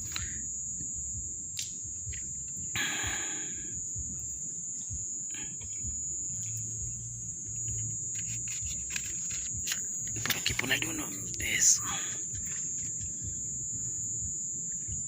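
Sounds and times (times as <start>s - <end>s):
low rumble: 0.0s - 15.0s
steady high-pitched tone: 0.0s - 15.0s
sticks rustling: 6.3s - 13.3s.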